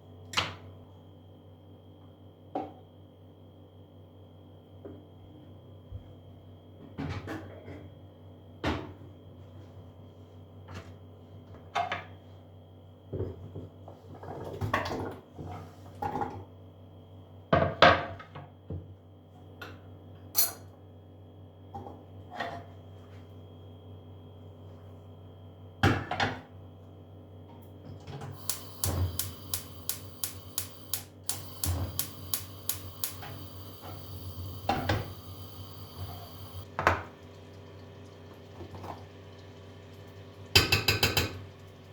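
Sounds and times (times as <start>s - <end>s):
steady low hum: 28.3s - 40.5s.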